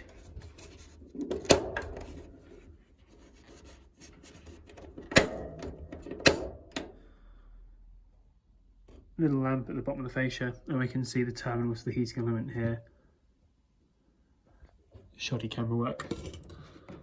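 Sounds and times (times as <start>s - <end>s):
rubbing and rustling: 0.0s - 5.0s.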